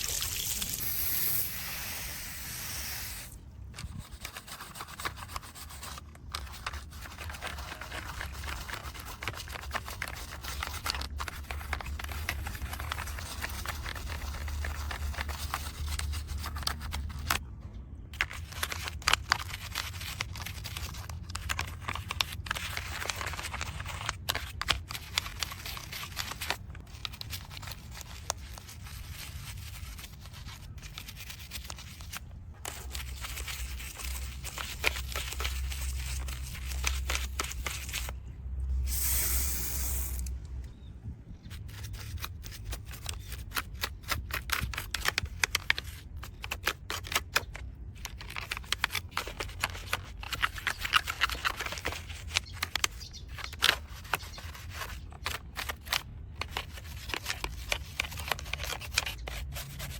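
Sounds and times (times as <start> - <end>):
spray hissing: 0.5 - 3.3, 38.9 - 40.3
small clicks and scrapes: 40.1 - 59.9.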